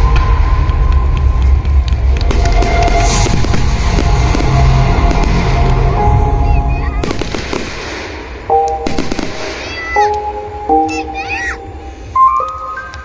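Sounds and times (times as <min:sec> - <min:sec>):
fireworks bangs and crackle: 0:00.0 - 0:10.1
loud music: 0:00.0 - 0:12.0.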